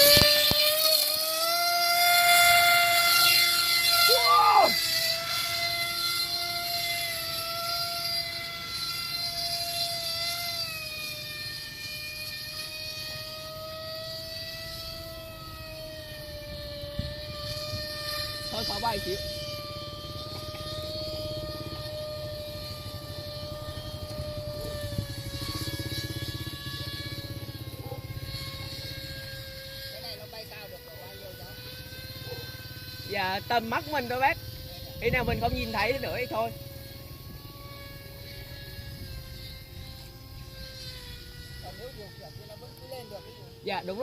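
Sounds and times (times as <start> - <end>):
model plane motor whining: 0.0 - 44.0
low pulsing rumble: 33.4 - 42.4.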